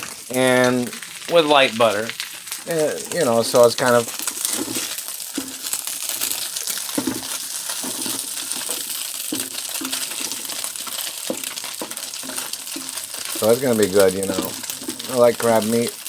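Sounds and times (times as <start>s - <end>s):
crab meat sizzling in a pan: 0.0s - 16.0s
utensil scraping a pan: 3.0s - 16.0s.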